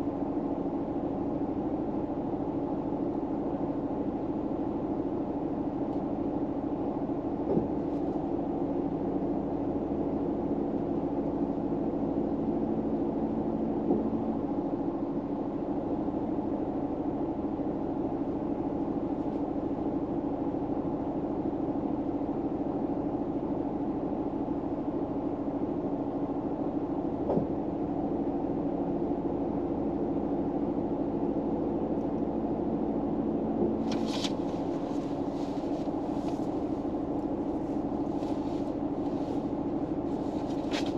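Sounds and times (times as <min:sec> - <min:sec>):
car interior hum and rumble: 0:00.0 - 0:15.2, 0:29.8 - 0:40.9
brief rustle: 0:33.9 - 0:36.5, 0:40.2 - 0:40.9.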